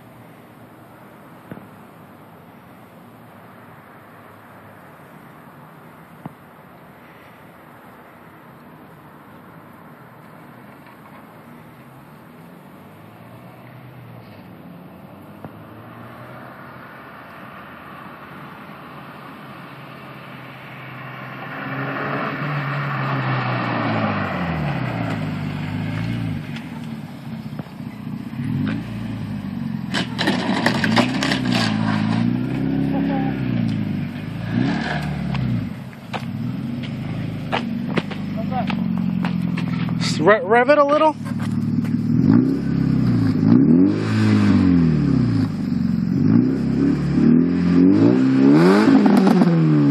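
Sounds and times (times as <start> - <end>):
car engine revving: 19.5 - 49.9
exhaust cracks: 23.4 - 49.9.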